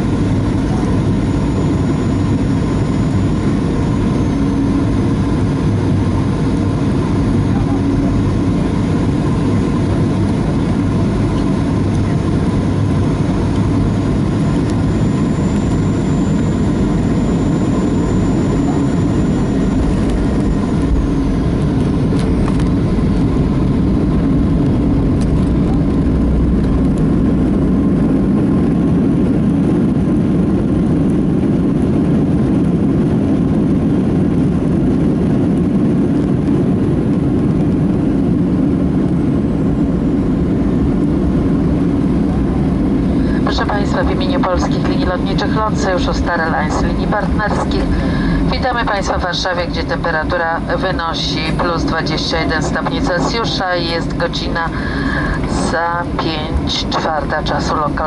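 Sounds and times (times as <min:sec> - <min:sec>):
faint high whine: 0:00.0 - 0:29.2
airplane cabin engine noise: 0:00.0 - 0:58.0.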